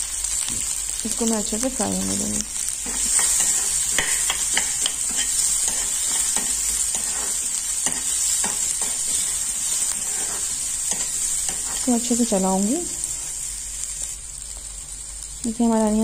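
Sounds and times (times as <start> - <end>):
onions sizzling in hot oil: 0.0 - 16.0
metal spoon scraping pan: 2.8 - 11.9.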